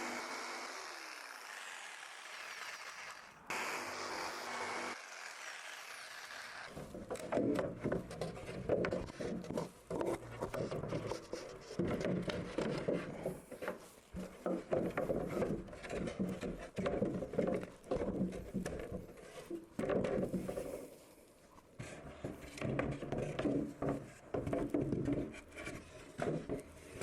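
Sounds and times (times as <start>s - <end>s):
wooden boards rubbing and knocking: 6.7s - 21.0s, 21.8s - 27.0s.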